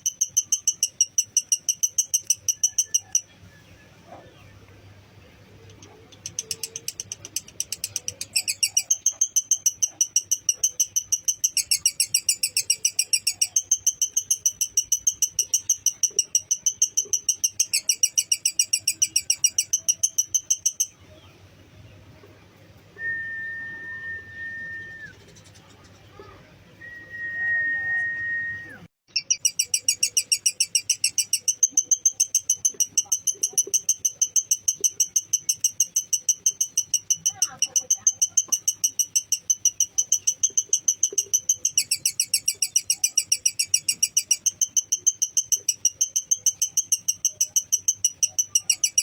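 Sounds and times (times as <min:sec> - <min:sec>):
lovebird chattering: 0:00.0 - 0:03.4, 0:05.6 - 0:21.2, 0:29.1 - 0:49.0.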